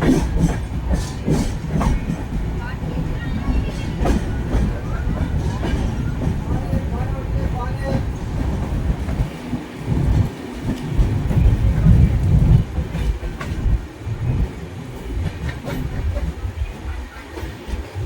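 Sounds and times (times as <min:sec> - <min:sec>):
train rumbling on track: 0:00.0 - 0:18.0
train wheel clicks: 0:00.0 - 0:18.0.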